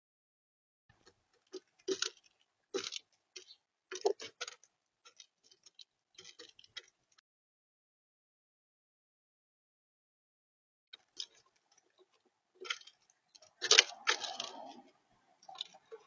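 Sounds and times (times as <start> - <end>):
bird pecking at feeder: 0.9 - 7.0.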